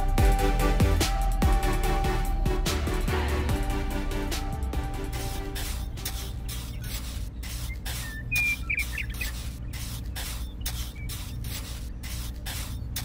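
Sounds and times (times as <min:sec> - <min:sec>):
trowel scraping wet cement: 0:04.2 - 0:13.0
bird chirping: 0:06.3 - 0:12.1.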